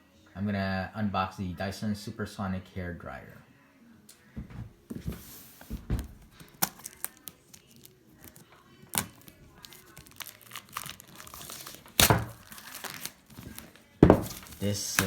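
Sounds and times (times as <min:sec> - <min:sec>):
packaging crinkling and tearing: 0:06.3 - 0:15.0.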